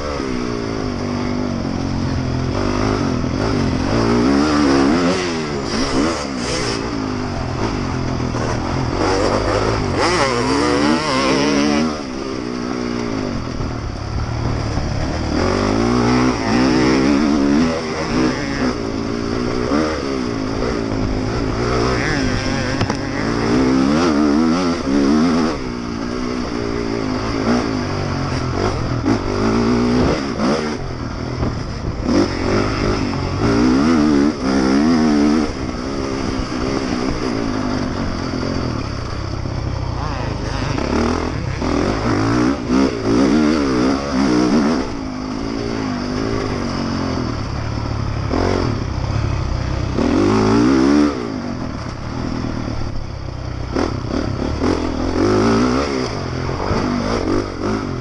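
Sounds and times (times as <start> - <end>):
motorbike engine revving: 0.0 - 58.0
steady rush of noise: 0.0 - 58.0.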